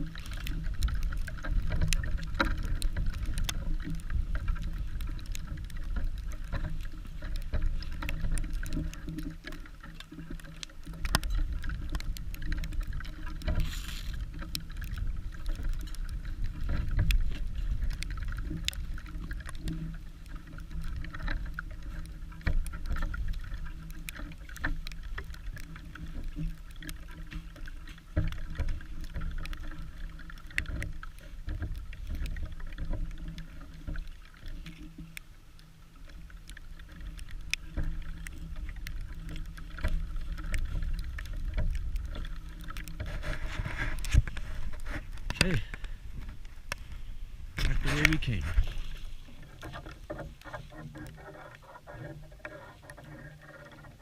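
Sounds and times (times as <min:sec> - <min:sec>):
wind buffeting microphone: 0:43.0 - 0:49.3.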